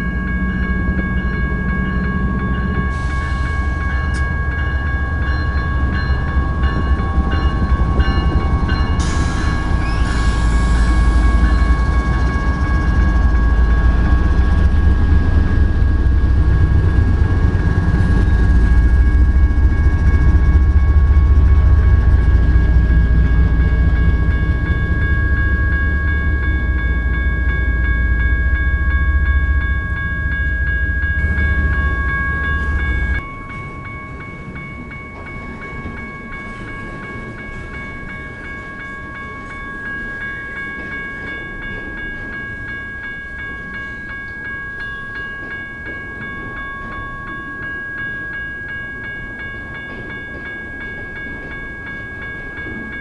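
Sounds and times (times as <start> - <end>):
diesel locomotives rumbling: 0.0 - 53.0
electronic crossing bells ringing: 0.0 - 53.0.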